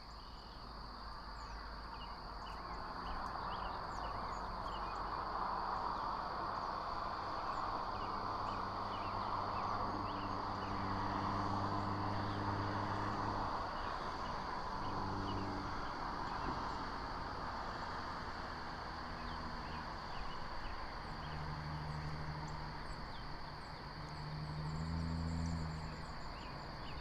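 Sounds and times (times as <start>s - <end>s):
insect trill: 0.0s - 27.0s.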